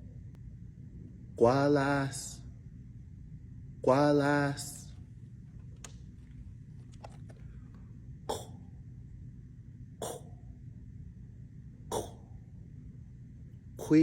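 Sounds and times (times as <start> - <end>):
man making guttural throat sound: 8.3 - 8.8, 10.0 - 10.5, 11.9 - 12.5, 13.8 - 14.0.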